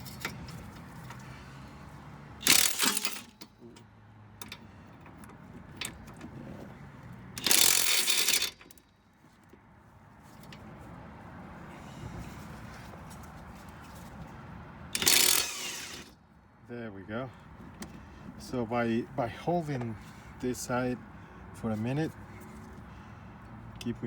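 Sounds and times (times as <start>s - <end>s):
ratchet wrench clicking: 2.4s - 3.5s, 7.4s - 8.8s, 14.9s - 16.1s.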